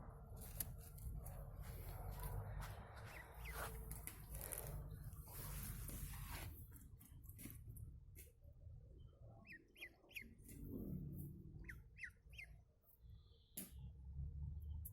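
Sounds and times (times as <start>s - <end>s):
ducklings peeping: 3.0s - 4.0s, 9.3s - 10.7s, 11.5s - 12.6s.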